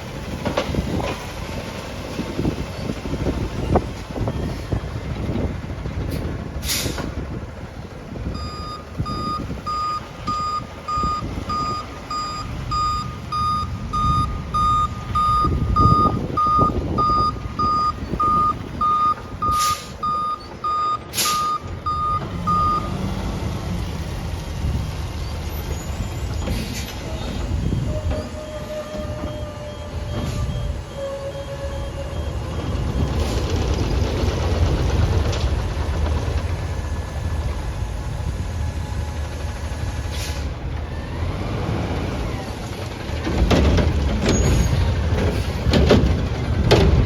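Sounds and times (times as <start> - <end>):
diesel engine running: 0.0 - 47.0
reversing alarm beeps: 8.4 - 22.9, 27.1 - 33.2.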